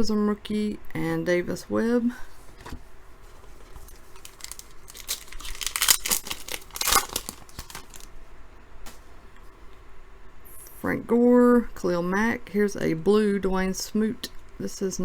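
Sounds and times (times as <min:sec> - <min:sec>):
foil wrapper tearing and crinkling: 0:03.6 - 0:08.1.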